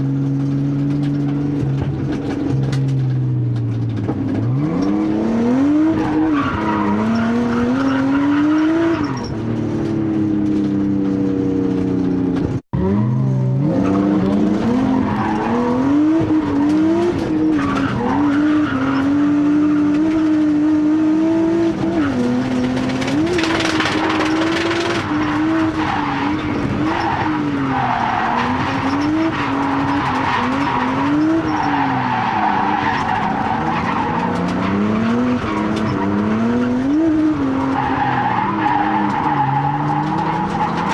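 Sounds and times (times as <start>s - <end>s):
car engine revving: 0.0s - 40.9s
tyre squeal: 23.2s - 40.9s.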